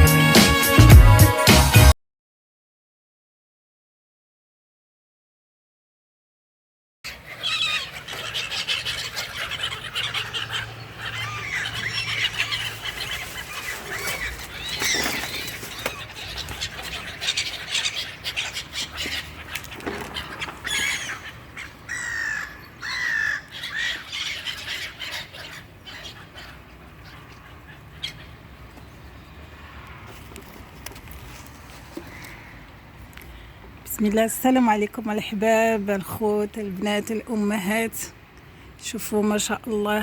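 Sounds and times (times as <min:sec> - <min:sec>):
birds chirping: 0:07.1 - 0:40.0.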